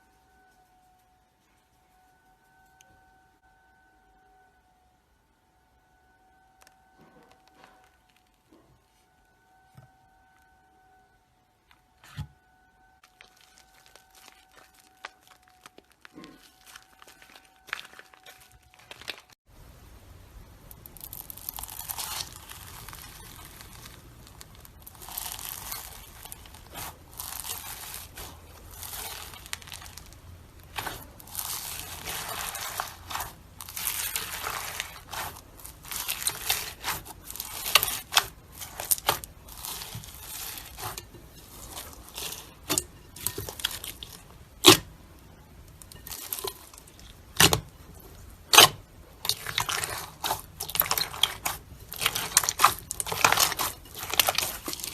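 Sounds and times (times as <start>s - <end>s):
slime crackling and crinkling: 6.6s - 9.1s, 13.0s - 19.8s, 20.4s - 54.9s
slime popping: 20.7s - 44.9s, 45.8s - 54.9s.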